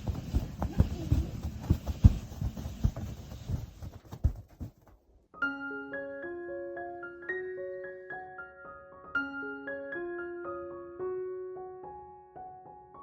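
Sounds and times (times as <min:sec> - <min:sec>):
dull thumps and crunching: 0:00.0 - 0:05.0
soft piano music: 0:05.3 - 0:13.0.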